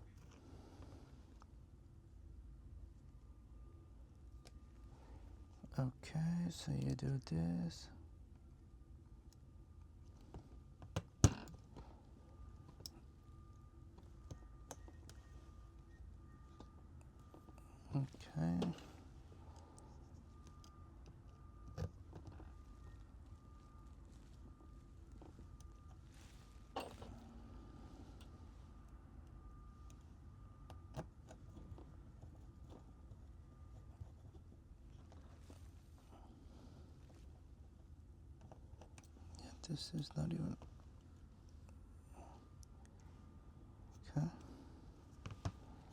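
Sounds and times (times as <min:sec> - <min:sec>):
low steady hum: 0:00.0 - 0:45.9.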